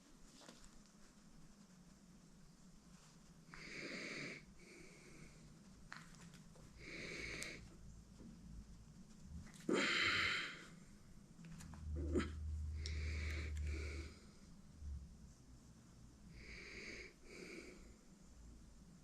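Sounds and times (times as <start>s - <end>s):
breathy wheezy breaths: 3.5s - 5.6s, 6.6s - 7.8s, 9.6s - 10.9s, 12.0s - 14.6s, 16.3s - 18.1s.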